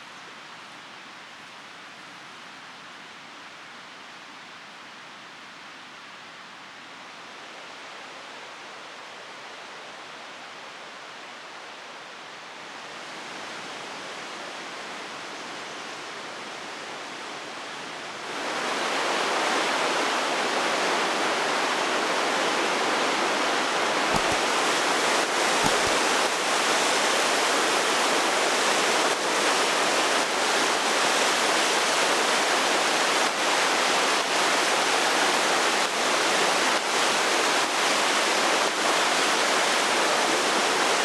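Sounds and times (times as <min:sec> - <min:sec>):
river water rushing: 0:18.2 - 0:41.0.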